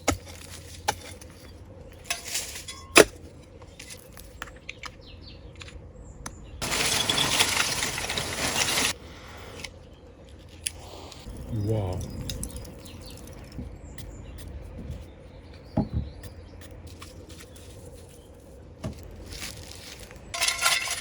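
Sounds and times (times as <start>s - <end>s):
gritty scrape of earth: 0.0s - 4.4s, 6.6s - 13.6s, 16.9s - 21.0s
metal tool clinking in soil: 0.1s - 3.2s, 6.6s - 9.0s, 11.8s - 13.6s, 19.3s - 21.0s.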